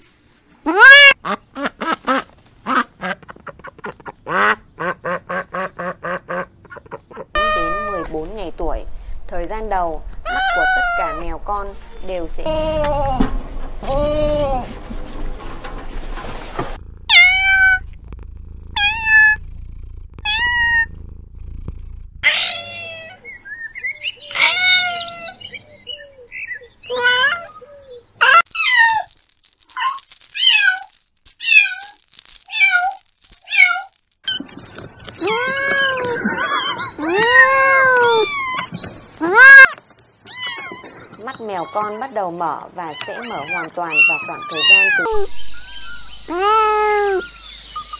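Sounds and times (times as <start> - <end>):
kittens meowing: 7.4 - 8.2, 10.2 - 14.8, 16.8 - 23.3, 24.2 - 34.5, 35.1 - 42.1, 42.8 - 47.3.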